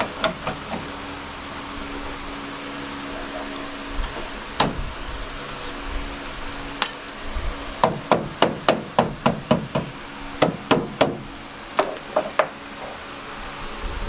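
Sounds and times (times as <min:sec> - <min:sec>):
hammer striking sheet steel: 0:04.6 - 0:04.8.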